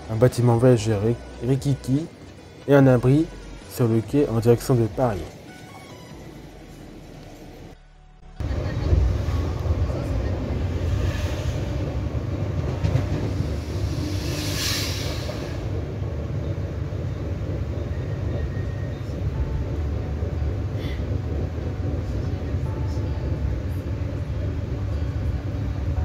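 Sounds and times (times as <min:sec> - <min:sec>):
electric train low rumble: 0:00.0 - 0:26.0
rush of hiss: 0:13.5 - 0:15.7.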